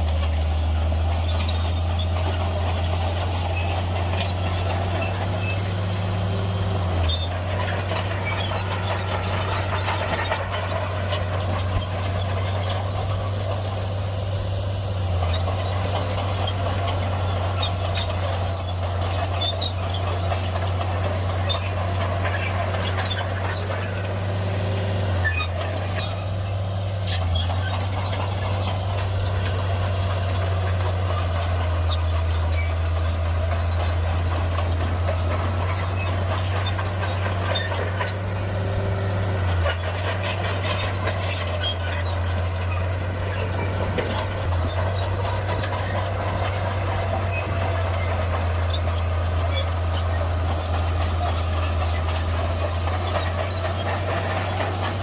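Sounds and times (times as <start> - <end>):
heavy diesel engine running: 0.0 - 55.0
clicks and clanks: 27.1 - 55.0.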